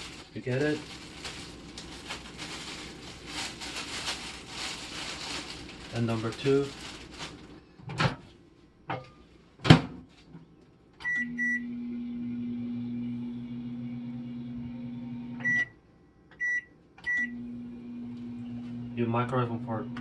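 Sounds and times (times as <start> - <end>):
microwave oven humming: 0.0 - 20.0
keypad beeps: 11.0 - 11.6, 15.4 - 15.7, 16.4 - 17.3.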